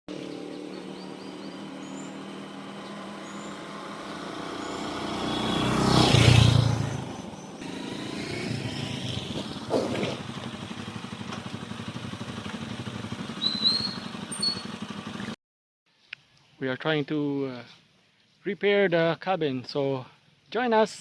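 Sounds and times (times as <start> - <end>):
vehicle passing by: 0.1 - 15.2
traffic engine hum: 0.1 - 15.4.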